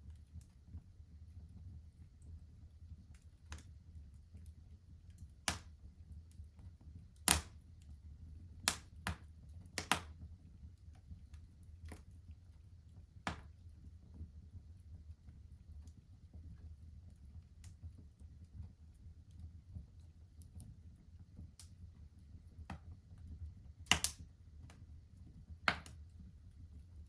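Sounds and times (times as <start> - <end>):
low rumble of burning fire: 0.0 - 27.0
fire pops and snaps: 2.2 - 7.9, 8.6 - 13.7, 17.1 - 18.6, 21.4 - 24.8, 25.6 - 26.1.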